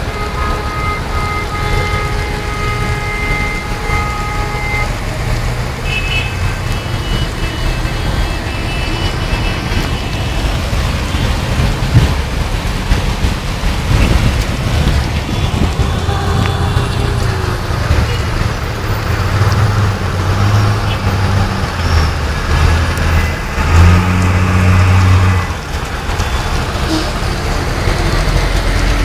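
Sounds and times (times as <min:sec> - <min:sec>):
rain: 0:00.0 - 0:29.0
road traffic: 0:00.0 - 0:29.0
steady pitched tones: 0:07.0 - 0:28.9
wind on microphone: 0:09.6 - 0:20.4.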